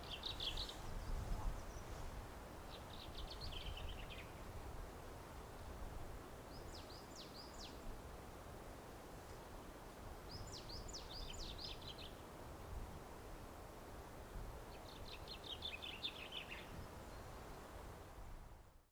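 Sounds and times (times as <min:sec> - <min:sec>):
low background noise: 0:00.0 - 0:18.9.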